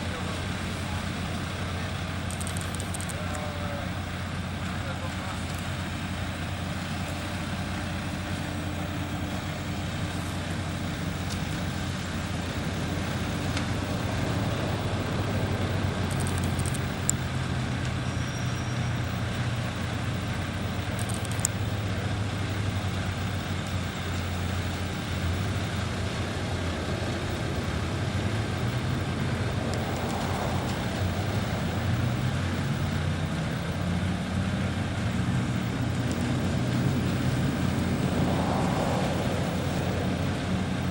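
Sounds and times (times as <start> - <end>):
engine running close by: 0.0 - 40.9
highway traffic rumble: 0.0 - 40.9
engine pitch rising: 26.3 - 34.2, 34.9 - 40.9.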